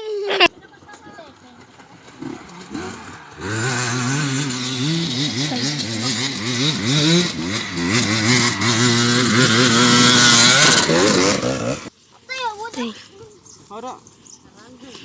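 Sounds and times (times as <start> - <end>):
dirt bike engine revving: 1.9 - 11.9.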